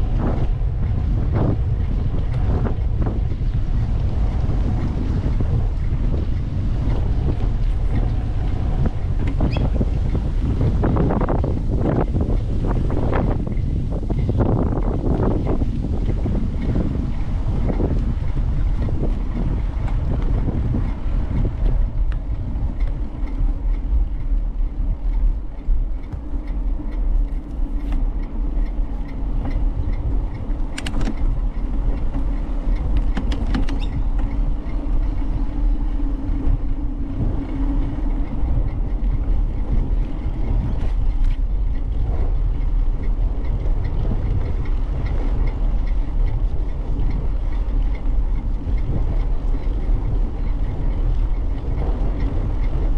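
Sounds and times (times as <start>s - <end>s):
wind rumbling on microphone: 0.0s - 52.9s
brief clicks: 30.7s - 31.3s.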